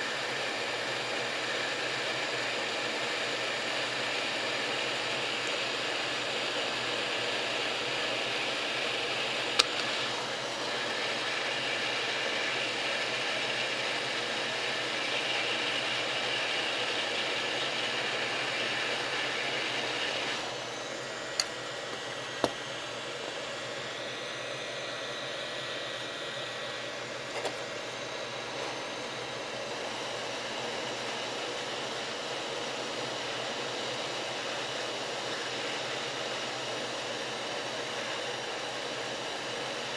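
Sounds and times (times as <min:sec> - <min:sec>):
fan blowing with rushing hiss: 0:00.0 - 0:39.9
sharp clicks: 0:09.5 - 0:10.0.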